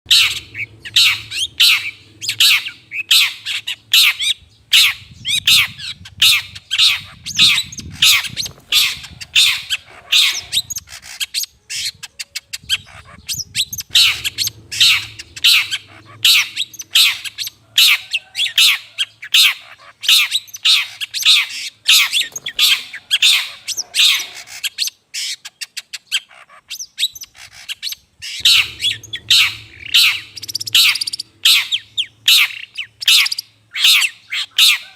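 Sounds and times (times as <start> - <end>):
shrike giving harsh squawking calls: 12.7 - 25.4, 27.4 - 34.9.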